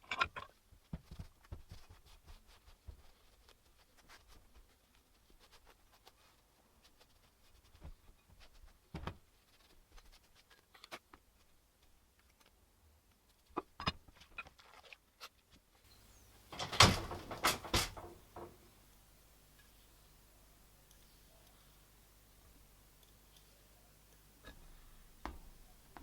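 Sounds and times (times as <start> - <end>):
light clicks and knocks: 16.2 - 18.7
clattering knocks: 16.3 - 18.7.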